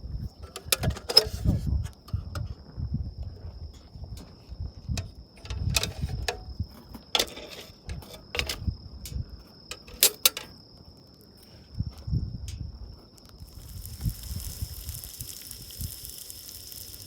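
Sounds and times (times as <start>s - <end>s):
clicks and knocks of gear handled: 5.0s - 10.6s
insect trilling: 13.1s - 17.0s.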